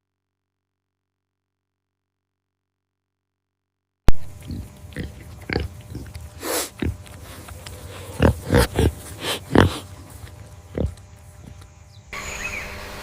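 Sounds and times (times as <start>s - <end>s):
pig grunting: 4.2s - 11.8s.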